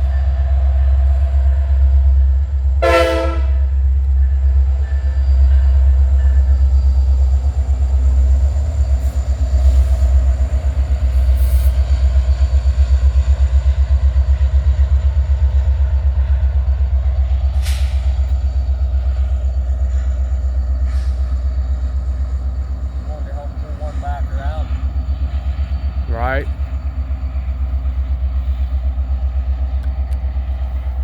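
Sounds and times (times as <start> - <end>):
diesel locomotive engine rumble: 0.0 - 31.0
short hiss: 17.6 - 18.2.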